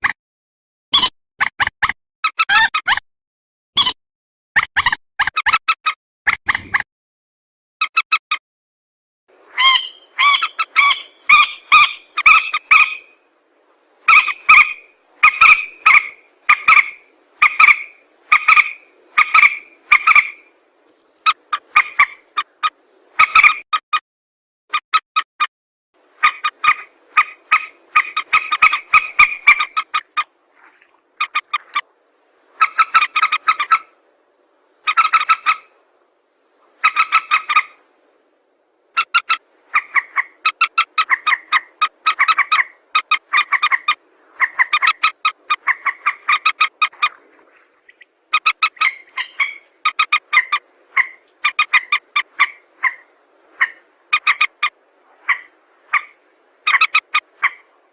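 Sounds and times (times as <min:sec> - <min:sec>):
rail bird calls: 0:09.5 - 0:13.2, 0:14.1 - 0:20.6, 0:21.2 - 0:23.6, 0:26.2 - 0:31.9, 0:32.5 - 0:34.0, 0:34.8 - 0:35.8, 0:36.7 - 0:37.8, 0:38.9 - 0:57.8.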